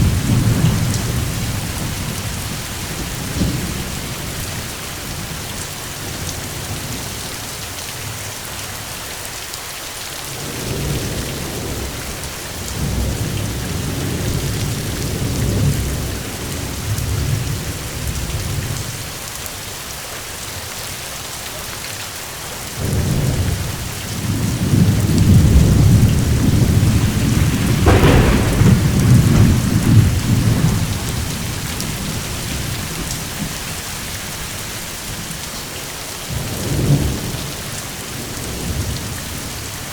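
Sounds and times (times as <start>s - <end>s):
low rolling thunder: 0.0s - 5.4s, 22.8s - 33.6s
heavy rain hissing: 22.5s - 39.9s
sharp thunder crack: 24.2s - 32.8s.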